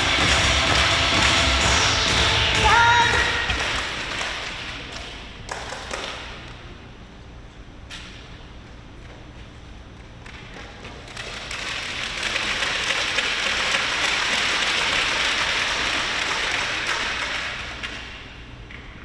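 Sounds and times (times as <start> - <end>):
crowd applauding: 0.0 - 4.9, 11.1 - 18.0.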